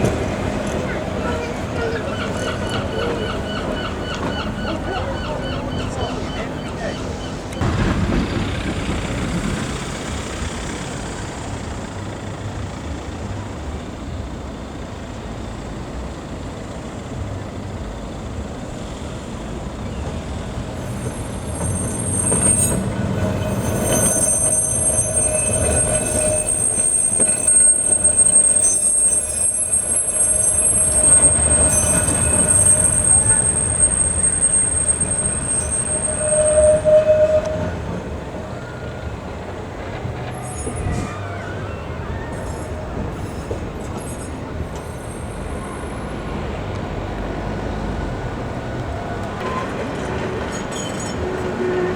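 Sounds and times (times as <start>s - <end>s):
steel wheels squealing on rail: 0.0s - 9.6s, 18.8s - 46.7s, 47.4s - 51.9s
tram rumbling on rails: 0.0s - 51.9s.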